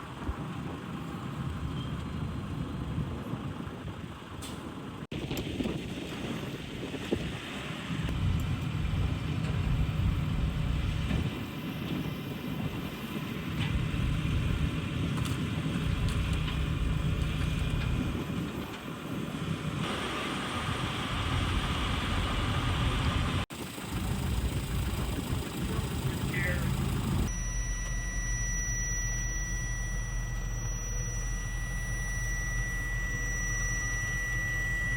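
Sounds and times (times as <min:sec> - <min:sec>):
diesel truck engine idling: 0:19.1 - 0:34.9.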